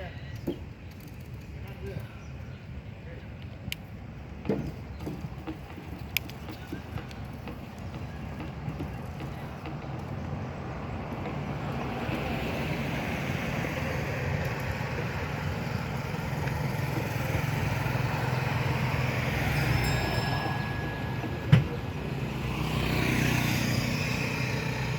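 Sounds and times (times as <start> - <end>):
vehicle engine running: 5.4 - 24.9.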